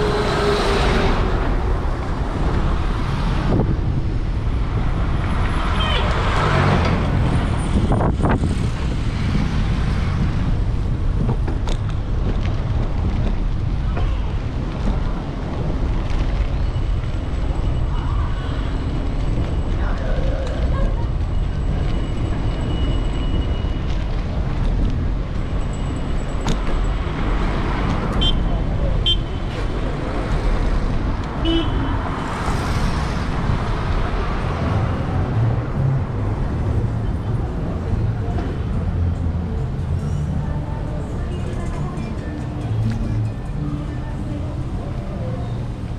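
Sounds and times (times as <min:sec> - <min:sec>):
wind buffeting microphone: 0:00.0 - 0:05.4, 0:06.8 - 0:16.4
city traffic: 0:00.0 - 0:45.9.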